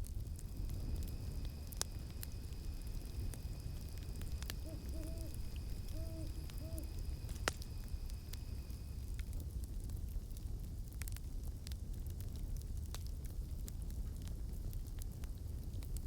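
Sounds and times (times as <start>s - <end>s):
insects droning: 0.0s - 9.7s
campfire crackling: 0.0s - 16.0s
owl hooting: 1.5s - 8.2s.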